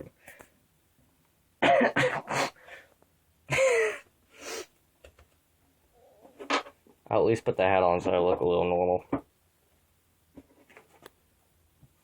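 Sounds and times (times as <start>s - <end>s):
person clearing throat: 1.6s - 2.6s
person coughing: 1.6s - 2.6s, 3.5s - 4.1s.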